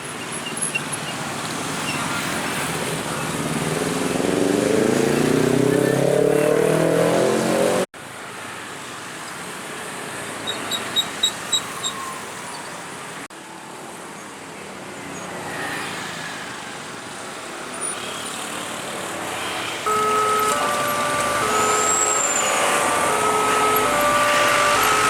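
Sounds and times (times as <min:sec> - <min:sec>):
passing cars and motorcycles: 0:00.0 - 0:07.9
short high-pitched beeps: 0:19.9 - 0:25.0.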